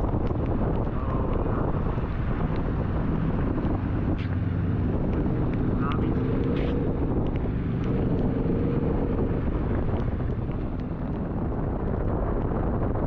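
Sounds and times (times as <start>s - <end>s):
light ticks: 0.0s - 2.8s, 5.0s - 11.7s
motorcycle engine running: 0.0s - 13.0s
wind rushing over microphone: 0.0s - 13.0s.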